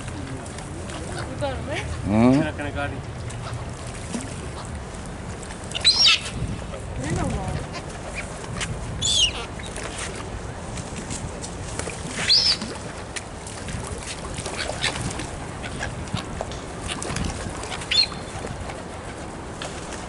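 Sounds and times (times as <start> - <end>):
waterfowl calling: 5.7 - 6.3, 9.0 - 9.5, 12.2 - 12.7, 17.7 - 18.5.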